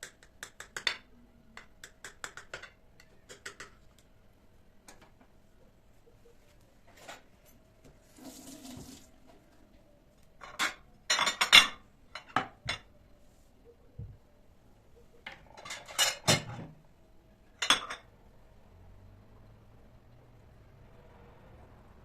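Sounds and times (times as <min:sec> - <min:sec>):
dishes and cutlery clinking: 0:10.4 - 0:12.9, 0:15.2 - 0:16.7, 0:17.6 - 0:18.1.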